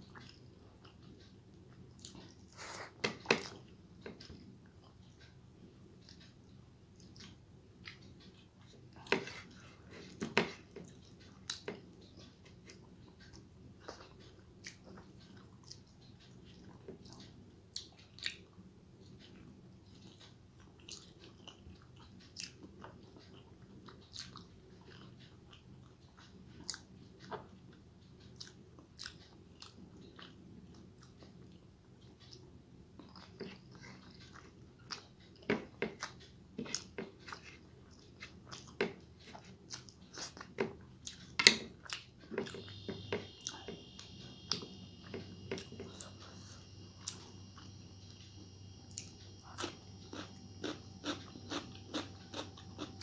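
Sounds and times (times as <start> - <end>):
chewing and mouth smacking: 0.0 - 2.6, 7.0 - 18.6, 19.9 - 27.5, 28.2 - 42.9, 48.9 - 53.0.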